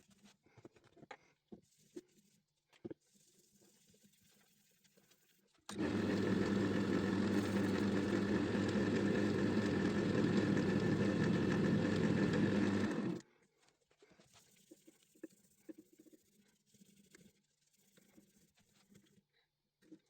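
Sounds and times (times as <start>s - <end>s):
electric wood lathe running: 5.7s - 13.2s.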